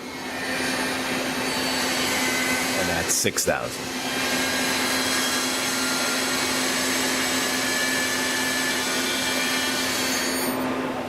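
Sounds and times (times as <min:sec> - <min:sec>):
lathe spindle high whine: 0:03.7 - 0:10.8.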